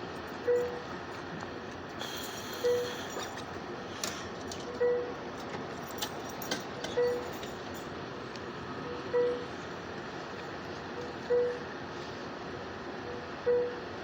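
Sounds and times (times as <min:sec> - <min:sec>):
passenger train running: 0:00.0 - 0:14.0
brief hiss: 0:02.0 - 0:03.2.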